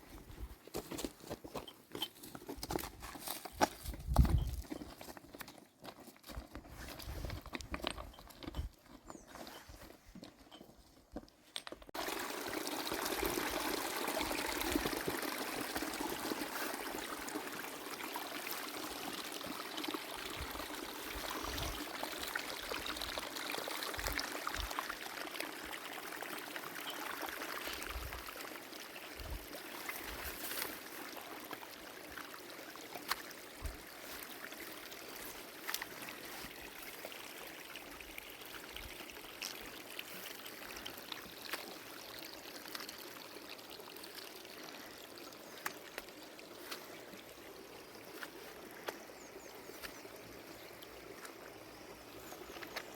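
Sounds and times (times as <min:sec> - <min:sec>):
spring water running: 0:12.0 - 0:52.9.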